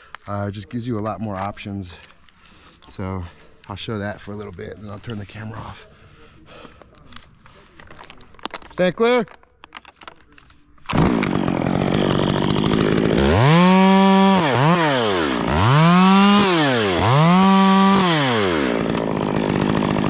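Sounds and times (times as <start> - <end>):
chainsaw idling and revving: 10.9 - 20.0.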